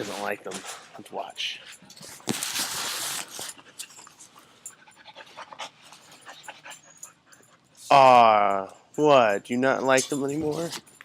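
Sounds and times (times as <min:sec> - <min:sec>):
dog panting: 0:03.4 - 0:07.9.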